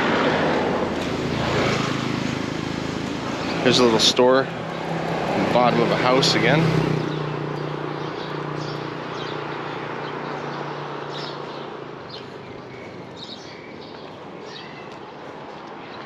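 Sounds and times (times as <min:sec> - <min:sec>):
vehicle engine hum: 0:00.0 - 0:14.0
bird chirps: 0:06.9 - 0:15.0.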